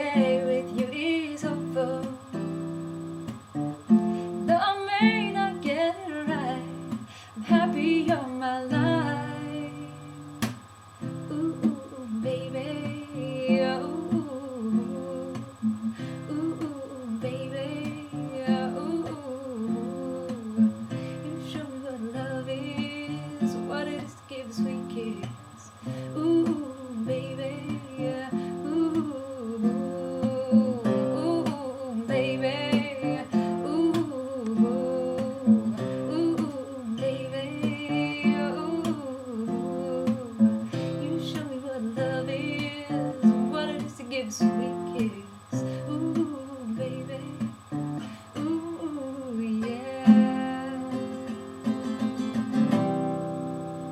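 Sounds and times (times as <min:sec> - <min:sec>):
acoustic guitar: 0:00.0 - 0:53.9
wordless vocals: 0:48.4 - 0:51.4.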